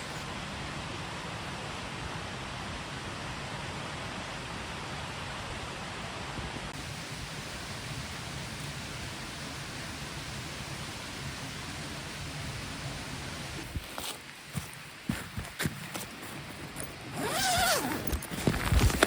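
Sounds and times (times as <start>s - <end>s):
stream babbling over stones: 6.8s - 15.1s.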